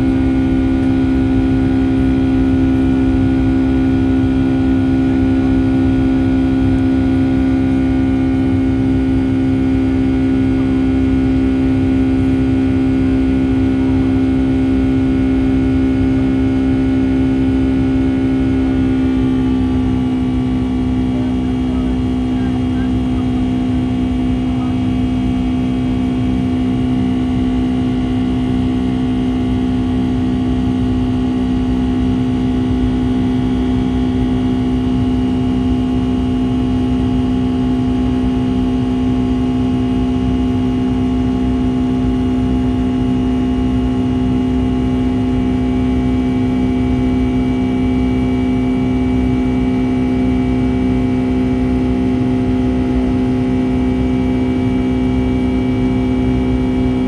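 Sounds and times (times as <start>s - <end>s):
airplane engine hum: 0.0s - 57.0s
airflow rumble: 16.7s - 27.6s.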